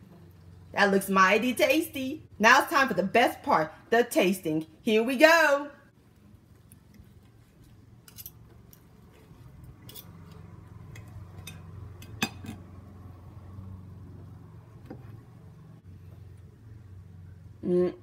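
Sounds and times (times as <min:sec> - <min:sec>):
low steady hum: 0:00.0 - 0:18.0
cutlery scraping a plate: 0:09.8 - 0:10.4, 0:11.3 - 0:12.7.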